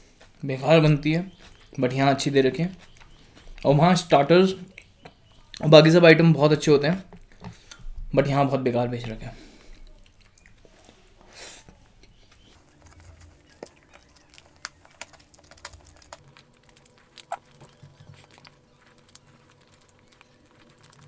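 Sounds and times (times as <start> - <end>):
wet mouth chewing clicks: 2.6 - 3.7, 4.6 - 5.7, 9.7 - 11.0, 11.7 - 21.0.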